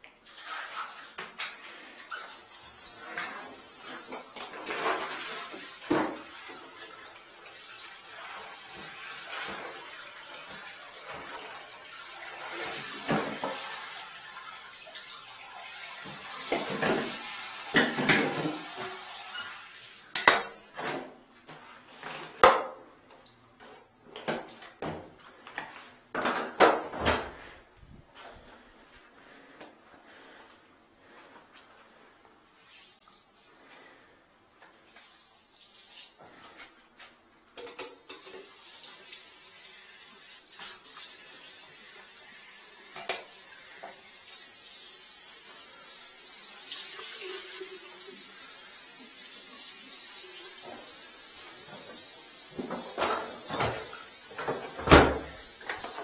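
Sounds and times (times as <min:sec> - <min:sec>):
water running: 0:00.2 - 0:20.6, 0:32.5 - 0:56.0.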